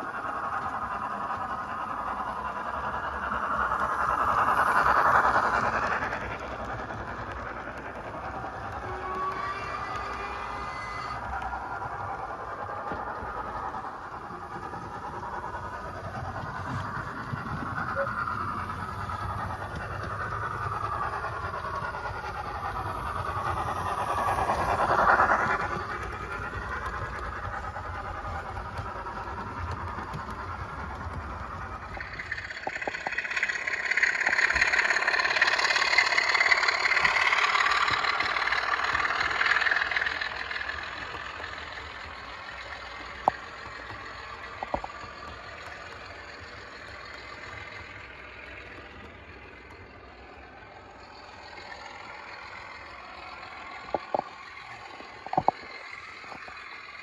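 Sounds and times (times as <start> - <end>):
model trains whirring: 0.0 - 57.0.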